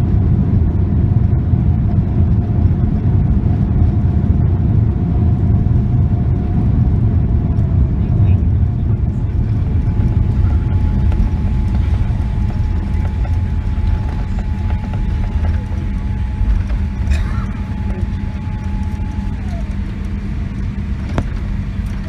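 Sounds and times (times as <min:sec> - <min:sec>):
airplane cabin rumble: 0:00.0 - 0:22.0
thin steady whine: 0:08.2 - 0:22.0.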